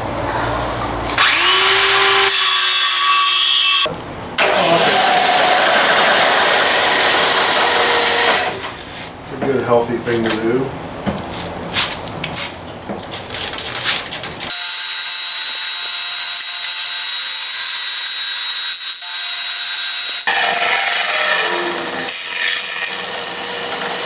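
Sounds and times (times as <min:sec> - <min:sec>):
power tool running: 0:01.2 - 0:08.6, 0:14.5 - 0:24.0.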